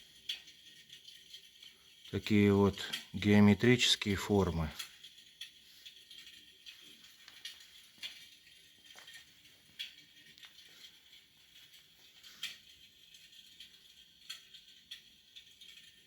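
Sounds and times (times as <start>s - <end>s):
electric fireplace crackling: 0.0s - 16.0s.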